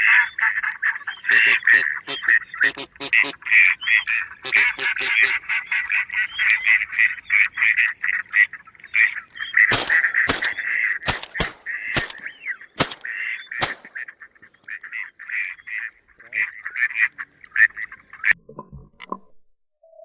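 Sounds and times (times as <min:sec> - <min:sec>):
ducks quacking: 0:00.0 - 0:18.4
shotgun shots: 0:09.7 - 0:14.0.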